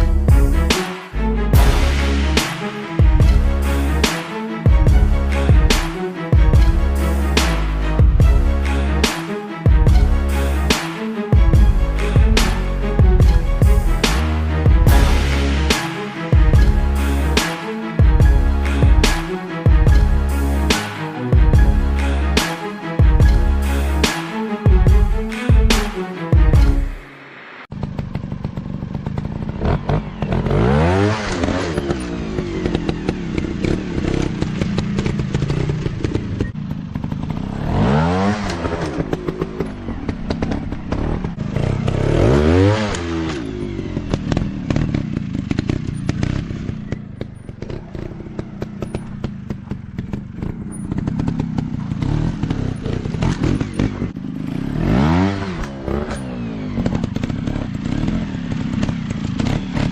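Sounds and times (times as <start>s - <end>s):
dirt bike engine revving: 27.7s - 59.9s.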